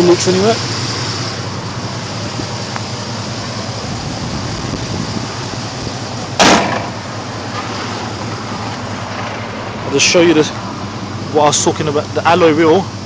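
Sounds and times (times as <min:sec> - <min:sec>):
engine idling: 0:00.0 - 0:13.0
sharp knock: 0:06.4 - 0:07.0.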